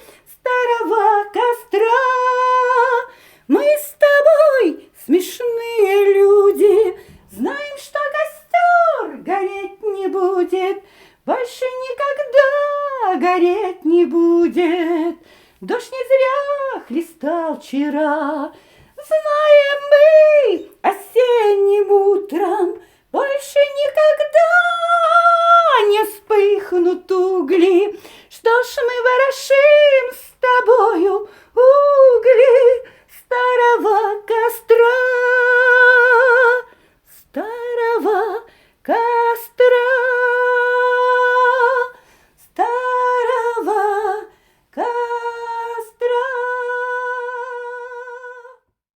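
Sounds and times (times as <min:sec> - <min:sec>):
woman singing unaccompanied: 0:00.0 - 0:48.8
singer breathing: 0:03.1 - 0:03.5, 0:10.8 - 0:11.2, 0:15.2 - 0:15.6, 0:18.5 - 0:19.0, 0:27.9 - 0:28.3, 0:38.5 - 0:38.8, 0:42.0 - 0:42.4, 0:44.3 - 0:44.7.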